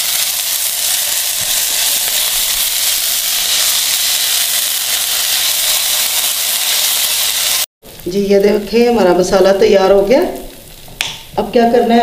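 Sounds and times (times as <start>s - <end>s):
potato paste sizzling in oil: 0.0s - 12.0s.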